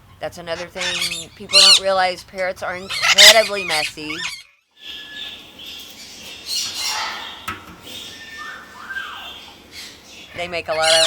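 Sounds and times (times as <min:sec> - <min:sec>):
parrots squawking and chattering: 0:00.4 - 0:04.5, 0:10.6 - 0:11.0
gliding whistled calls: 0:00.6 - 0:02.0, 0:02.8 - 0:04.5.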